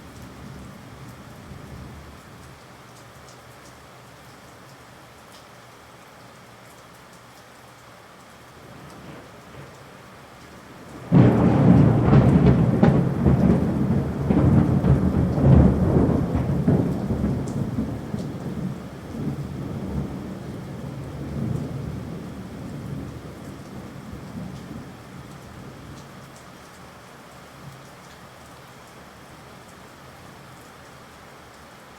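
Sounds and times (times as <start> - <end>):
steady rain: 0.0 - 31.9
thunder clap and rumble: 10.8 - 26.0.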